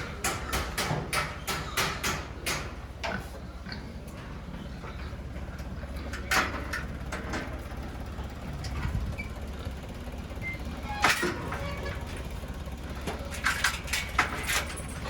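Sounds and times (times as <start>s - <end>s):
sharp knocks and clatters: 0.2s - 3.2s, 13.0s - 15.0s
truck engine idling: 5.1s - 15.0s.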